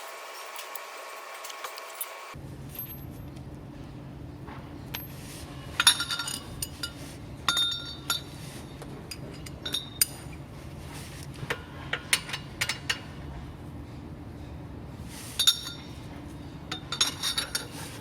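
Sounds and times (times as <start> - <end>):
metal tools clinking: 0.1 - 3.4, 4.9 - 8.5, 9.1 - 10.4, 15.3 - 16.1, 16.7 - 18.0
steady low hum: 2.2 - 18.0.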